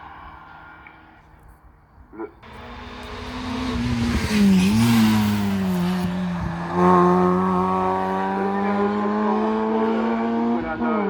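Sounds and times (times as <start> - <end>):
race car engine passing at speed: 2.4 - 11.0.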